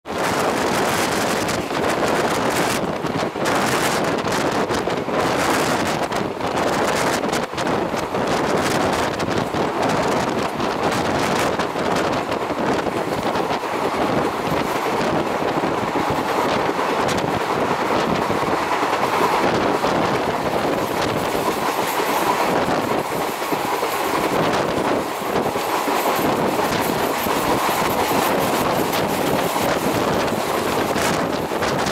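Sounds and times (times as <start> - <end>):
train wheels clattering on rails: 0.1 - 31.9.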